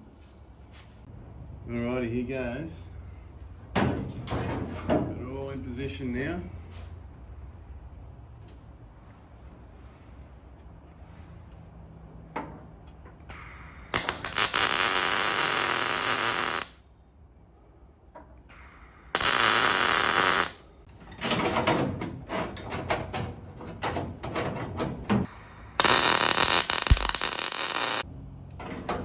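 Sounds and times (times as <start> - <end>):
welder hissing and crackling: 13.3 - 16.8, 18.5 - 20.6, 25.3 - 28.0.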